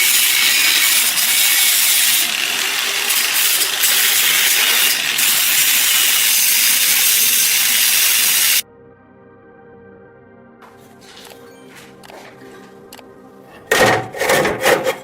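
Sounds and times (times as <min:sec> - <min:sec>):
power tool rasping on rusty metal: 0:00.0 - 0:08.6.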